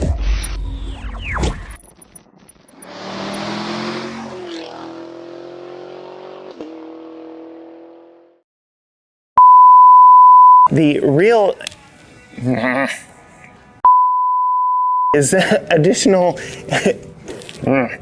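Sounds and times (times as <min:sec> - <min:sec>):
car engine revving: 0:02.7 - 0:08.4.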